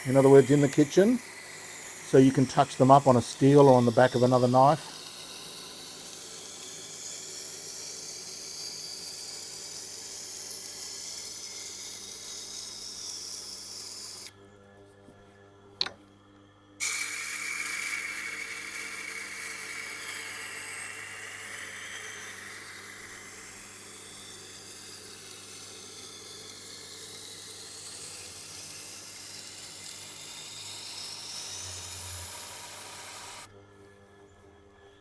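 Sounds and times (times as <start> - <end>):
motor humming: 0.0 - 14.3, 16.8 - 33.5.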